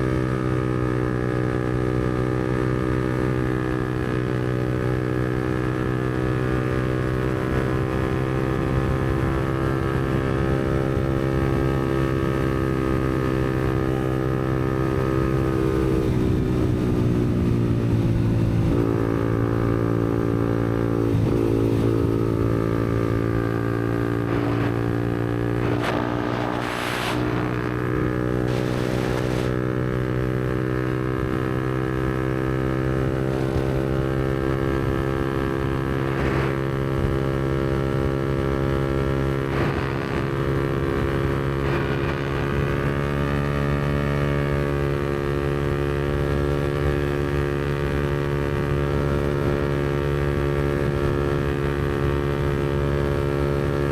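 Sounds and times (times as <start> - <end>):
motorcycle engine cruising: 0.0 - 53.9.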